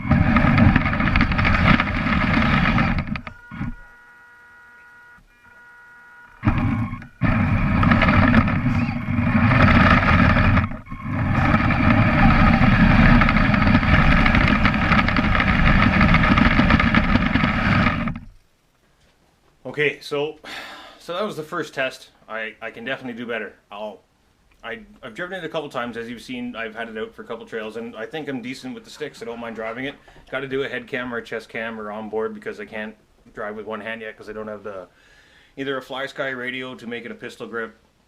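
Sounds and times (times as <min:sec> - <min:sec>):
electric drive gear whine: 0:00.0 - 0:18.5
heavy rumble from tracks: 0:07.2 - 0:18.2.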